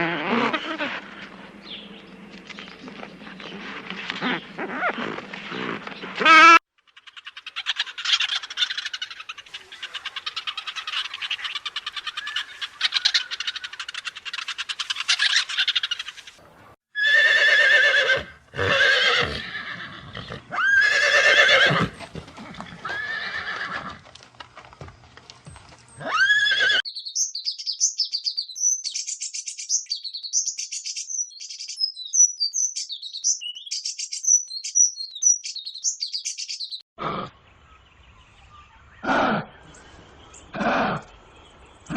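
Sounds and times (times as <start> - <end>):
drawn-out pitched animal calls: 0.0 - 1.6, 2.9 - 16.4, 17.0 - 24.9, 25.9 - 26.8
rapid high animal chattering: 4.1 - 16.4.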